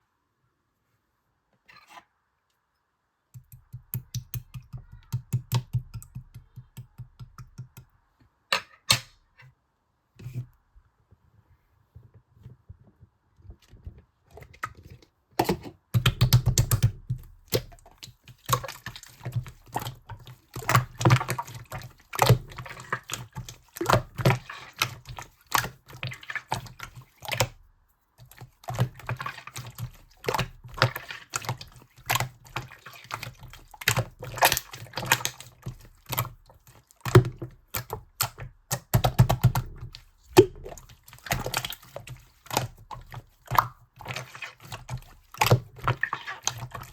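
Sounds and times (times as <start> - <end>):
slime squished by hand: 28.2 - 46.9.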